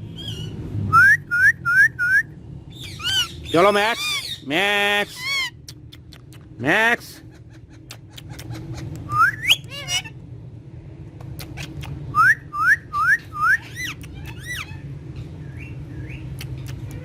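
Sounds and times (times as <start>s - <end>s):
parrot whistling: 0.2s - 4.4s, 9.1s - 10.1s, 12.1s - 14.8s.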